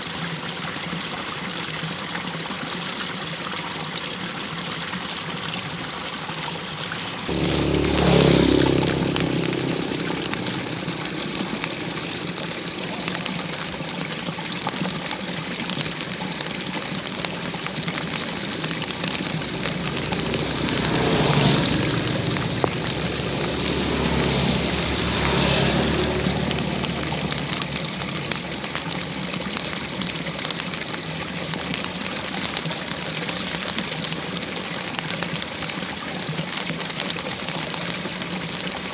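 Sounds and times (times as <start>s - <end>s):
water running in a ditch: 0.0s - 38.9s
steady rain: 7.2s - 33.7s
motor vehicle passing: 7.3s - 29.8s.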